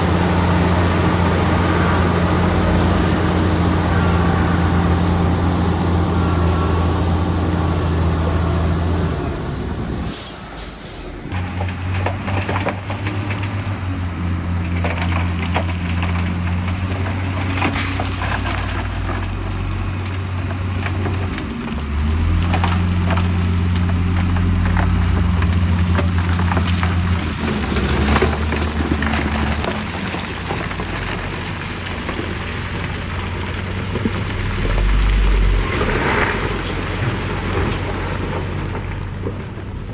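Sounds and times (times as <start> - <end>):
diesel earthmoving machinery running: 0.0 - 39.9
short air hiss: 10.0 - 11.3.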